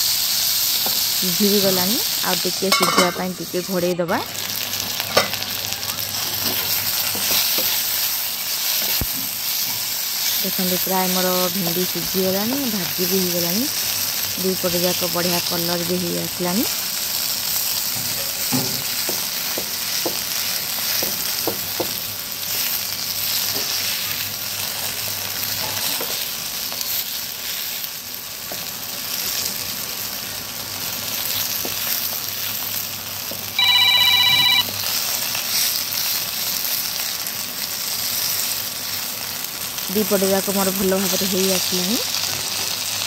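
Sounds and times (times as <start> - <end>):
okra sizzling in oil: 0.0 - 43.0
loud electronic beeping tone: 33.6 - 34.6.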